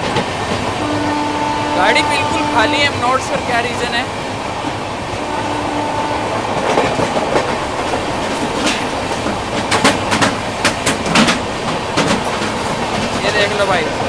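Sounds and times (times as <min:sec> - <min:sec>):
rumble of wheels on rails: 0:00.0 - 0:14.0
wheel clicks over rail joints: 0:06.6 - 0:13.7.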